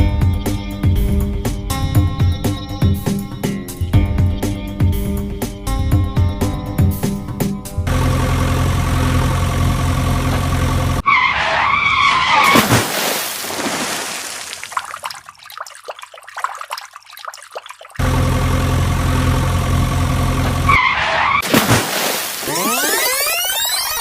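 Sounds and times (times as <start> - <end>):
vehicle engine running: 7.8 - 11.0, 18.0 - 20.8
tyre skid squeal: 11.0 - 12.8, 20.7 - 21.4.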